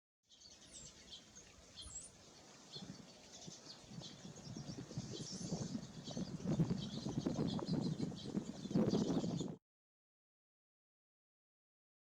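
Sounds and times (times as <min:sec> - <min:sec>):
songbirds chirping: 0:00.3 - 0:09.6.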